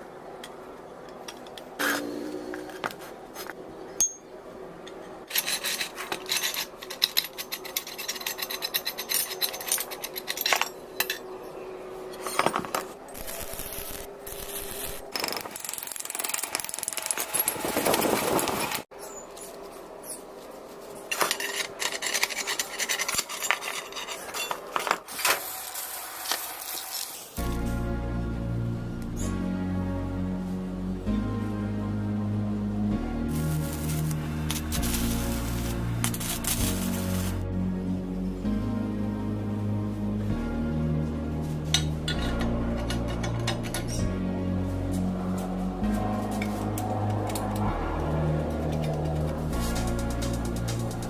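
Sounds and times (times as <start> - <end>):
metal tools clinking: 4.0 - 4.3, 4.9 - 13.5, 21.0 - 25.3, 41.7 - 44.1
metal scraping and rubbing: 5.0 - 27.6, 33.3 - 37.5, 41.4 - 51.0.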